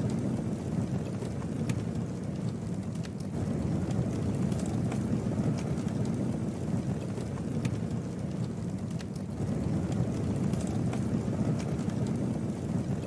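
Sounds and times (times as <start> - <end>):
campfire flames rumbling: 0.0 - 13.0
fire crackling and popping: 0.0 - 13.0.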